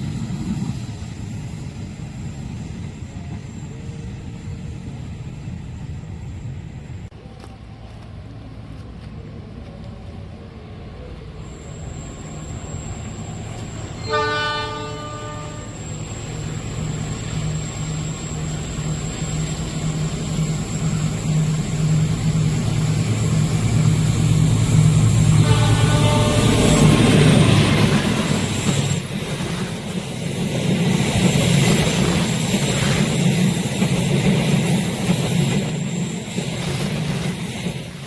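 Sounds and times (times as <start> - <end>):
diesel train engine drone: 0.0 - 38.0
train horn blast: 13.9 - 16.0, 25.2 - 27.1.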